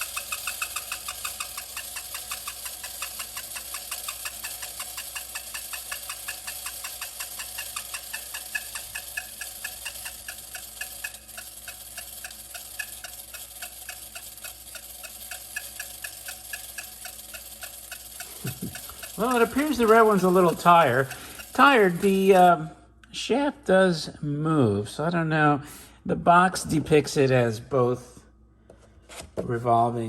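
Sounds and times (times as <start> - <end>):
toy bird chirping: 0.0 - 22.2
clockwork toy mechanism running: 0.0 - 22.7.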